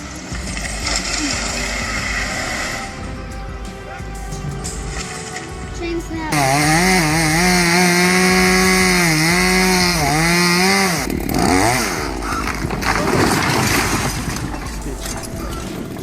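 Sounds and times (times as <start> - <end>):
jumble of messy noise: 0.0 - 16.0
chainsaw cutting wood: 6.3 - 14.5.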